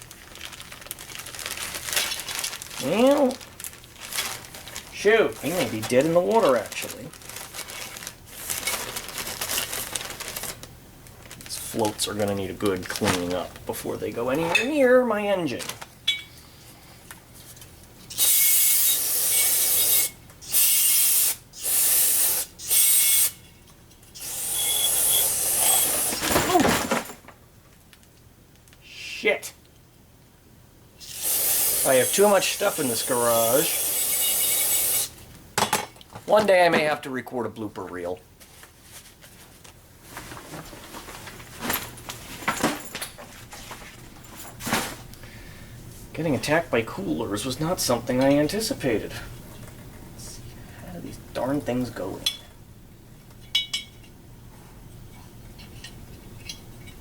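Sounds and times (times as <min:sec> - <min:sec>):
spray can hissing: 0:18.2 - 0:23.3, 0:31.0 - 0:35.1.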